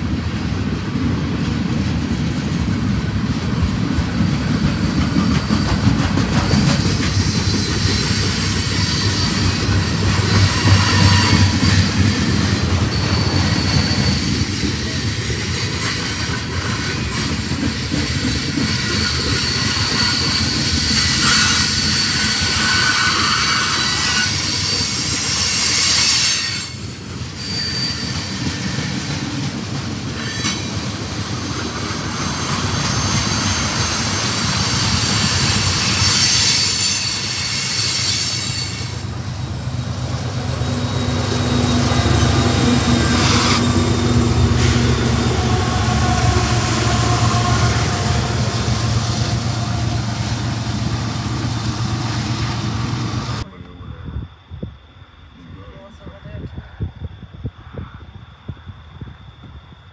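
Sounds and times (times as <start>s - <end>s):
train wheels rumbling on rails: 0.0s - 53.5s
high wheel squeal: 4.9s - 29.3s, 30.1s - 53.4s.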